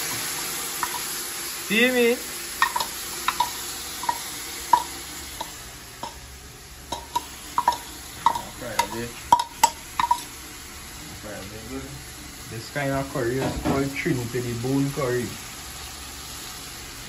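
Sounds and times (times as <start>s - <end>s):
food sizzling in oil: 0.0s - 17.0s
spoon tapping and scraping pot: 0.8s - 1.1s, 2.6s - 6.2s, 6.9s - 10.3s.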